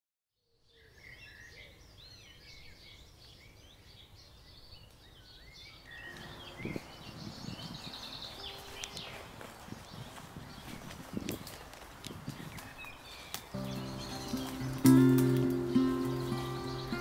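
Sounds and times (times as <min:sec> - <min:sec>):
songbirds singing: 0:00.5 - 0:17.0.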